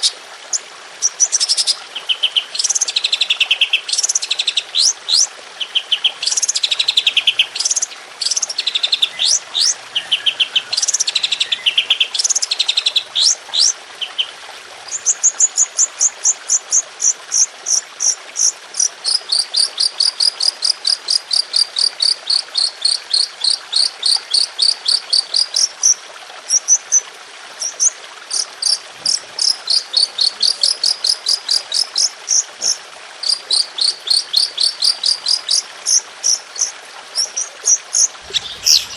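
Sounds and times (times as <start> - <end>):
songbird fast high trills: 38.2 - 38.9.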